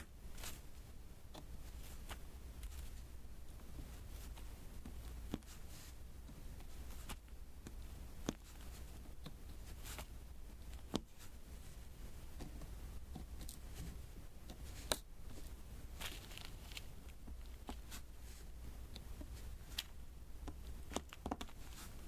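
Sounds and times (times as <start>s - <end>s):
faint low hum: 0.0s - 22.0s
small plastic clicks and taps: 18.9s - 21.6s.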